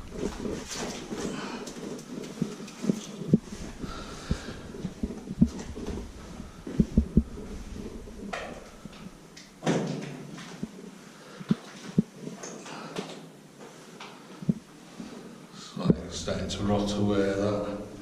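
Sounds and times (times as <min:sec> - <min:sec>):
rustling scrape: 0:00.0 - 0:08.9.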